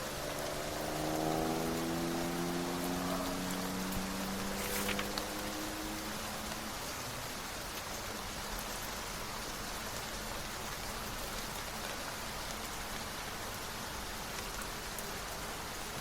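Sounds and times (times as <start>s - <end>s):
raindrop ticks: 0.0s - 16.0s
steady rain hiss: 0.0s - 16.0s.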